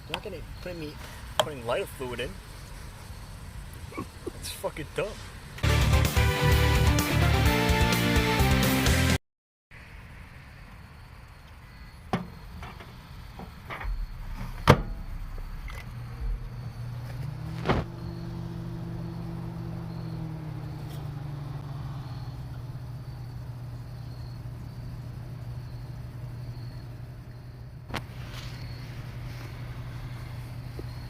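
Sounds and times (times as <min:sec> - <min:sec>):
sharp clicks and knocks: 0:12.1 - 0:17.9
microwave oven humming: 0:13.1 - 0:31.0.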